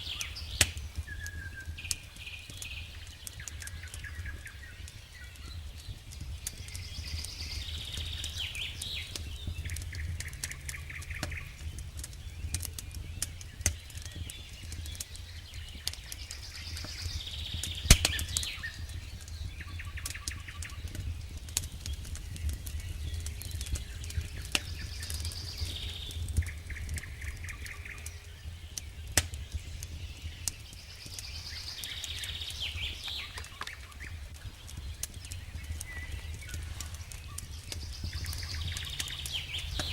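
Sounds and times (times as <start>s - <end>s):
campfire crackling and popping: 0.0s - 39.9s
songbird singing: 0.0s - 39.9s
steady low rumble: 5.6s - 17.6s, 31.1s - 39.9s.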